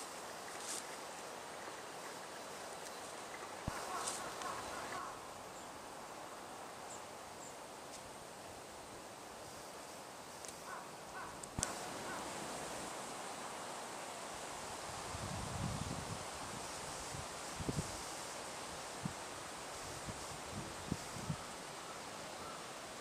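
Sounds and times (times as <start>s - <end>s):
dry leaves rustling: 0.0s - 5.2s
steady outdoor hiss: 0.0s - 23.0s.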